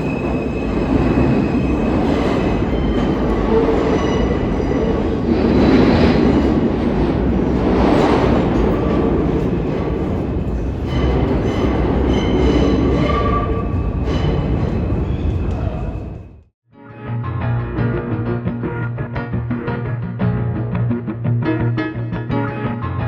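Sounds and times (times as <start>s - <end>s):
subway train rumbling on rails: 0.0s - 16.5s.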